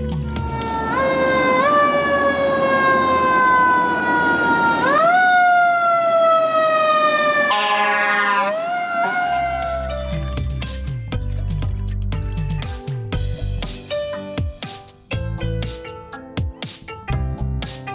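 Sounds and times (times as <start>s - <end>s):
siren wailing: 0.0s - 10.2s.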